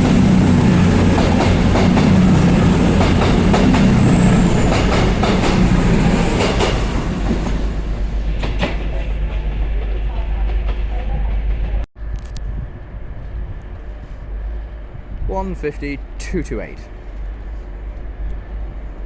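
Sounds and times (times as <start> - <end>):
train diesel engines droning: 0.0 - 11.8.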